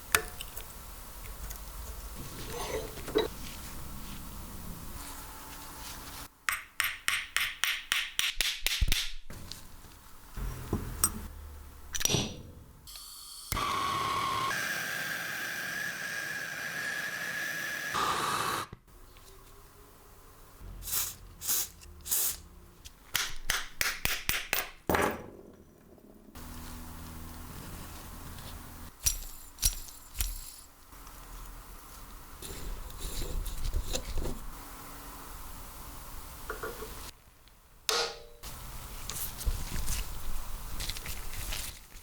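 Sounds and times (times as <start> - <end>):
tool whine: 12.9 - 18.8.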